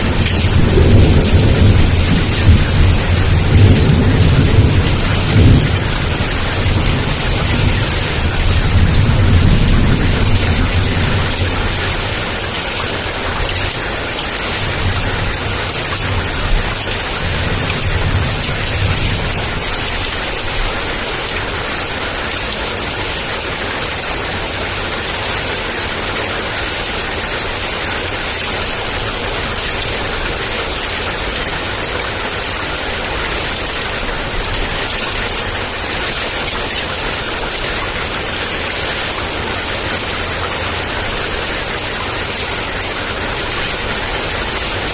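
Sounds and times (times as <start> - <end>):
distant thunder rumble: 0.0 - 13.7
heavy rain pouring: 0.0 - 44.9.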